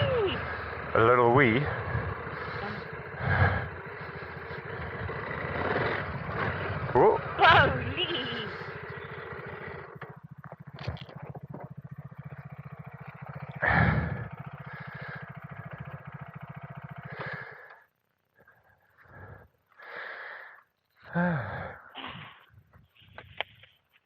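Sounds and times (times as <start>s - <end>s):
motorcycle engine running: 0.0s - 19.5s.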